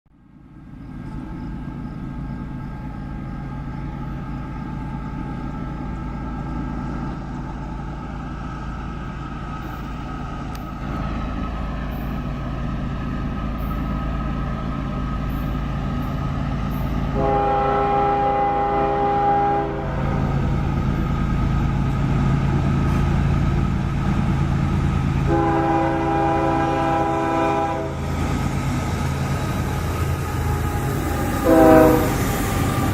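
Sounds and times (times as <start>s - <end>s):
diesel locomotive engines droning: 0.1s - 32.9s
locomotive air horn chord: 17.1s - 20.3s, 25.2s - 28.0s, 30.2s - 32.9s.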